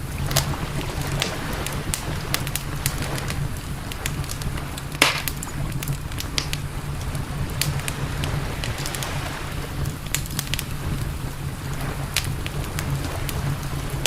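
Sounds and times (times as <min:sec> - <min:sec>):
campfire crackling and popping: 0:00.0 - 0:14.0
low rumble of fire: 0:00.0 - 0:14.0.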